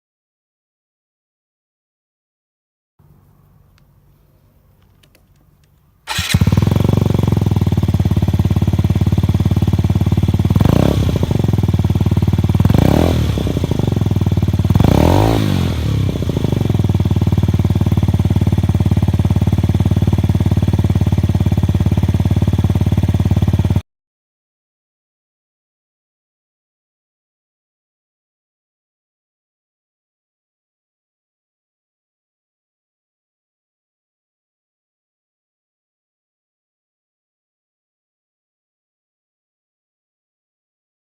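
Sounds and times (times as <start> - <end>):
scooter engine idling and revving: 6.1 - 23.8.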